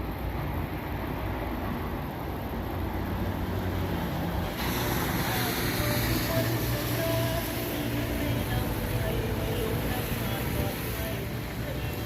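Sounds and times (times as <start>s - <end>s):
vehicle rumble: 0.0s - 12.0s
rain hissing: 4.0s - 12.0s.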